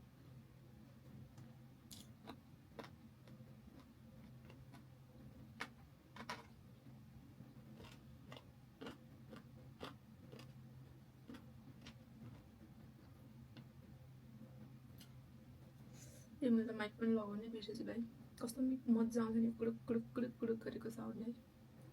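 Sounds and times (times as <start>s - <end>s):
low steady hum: 0.0s - 21.9s
person chewing crunchy food: 1.9s - 4.9s, 7.7s - 10.6s, 11.2s - 12.5s.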